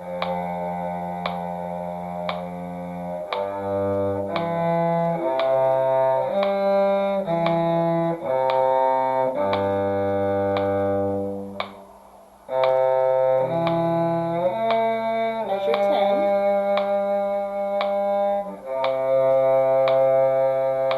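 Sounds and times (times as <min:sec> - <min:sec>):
metronome click: 0:00.0 - 0:11.9, 0:12.5 - 0:20.9
cello line: 0:00.0 - 0:20.9.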